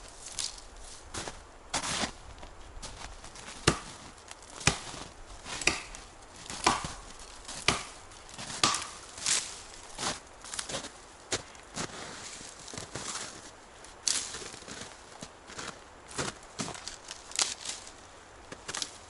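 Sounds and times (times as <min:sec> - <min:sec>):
chopping strokes: 0:03.6 - 0:04.0, 0:04.6 - 0:09.0.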